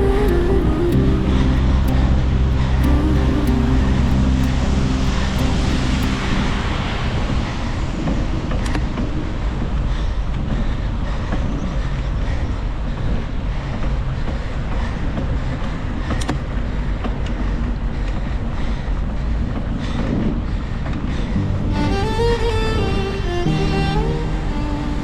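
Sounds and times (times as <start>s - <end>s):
passing traffic: 0.0s - 9.7s, 21.3s - 25.0s.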